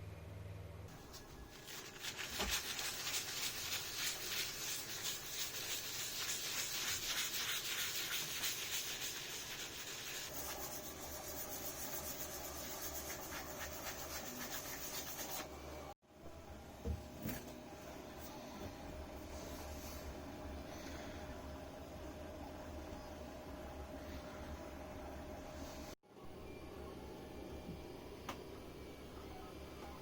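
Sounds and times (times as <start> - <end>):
sanding wood: 1.6 - 15.5.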